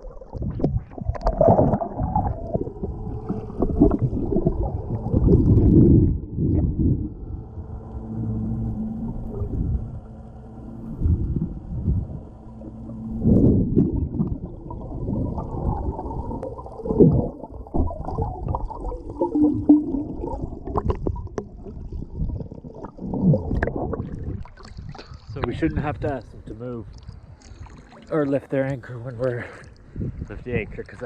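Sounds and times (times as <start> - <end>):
water sloshing and gurgling: 0.0 - 31.0.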